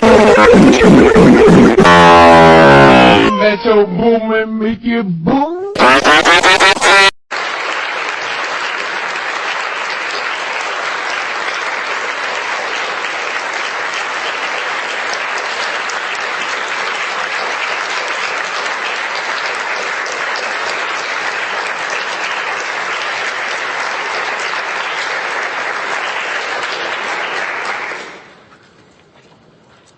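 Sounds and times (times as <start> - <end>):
crowd applause: 0.0 - 3.4, 5.8 - 28.4
loud pitched tone: 0.4 - 7.1.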